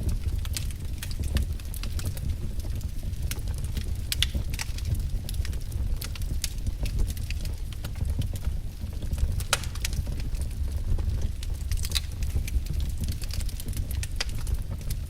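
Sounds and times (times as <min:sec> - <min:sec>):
firewood crackling and popping: 0:00.0 - 0:15.0.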